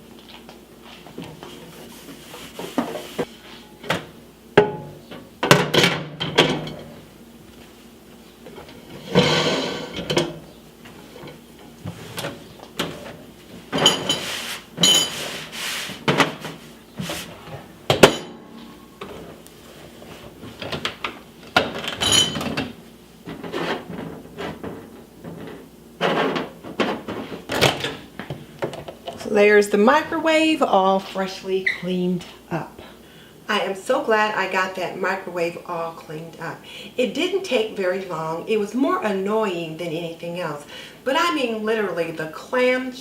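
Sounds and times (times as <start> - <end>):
wiping and rubbing strokes: 0.8 - 3.6, 14.2 - 17.4.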